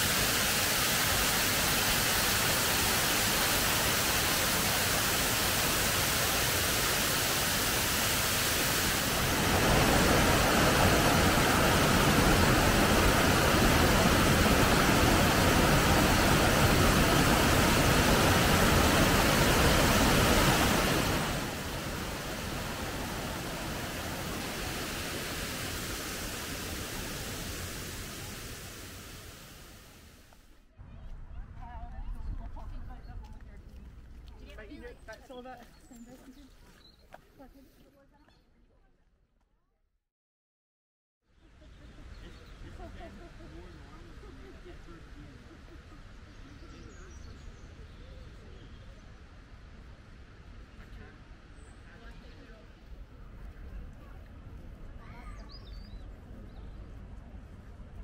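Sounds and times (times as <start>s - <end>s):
waterfall rushing: 0.0s - 30.2s.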